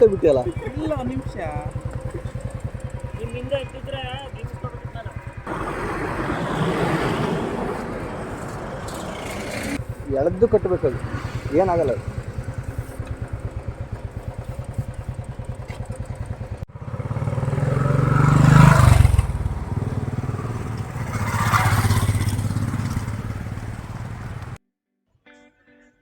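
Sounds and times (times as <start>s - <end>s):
motorcycle engine: 0.0s - 24.6s
road noise: 0.0s - 24.6s.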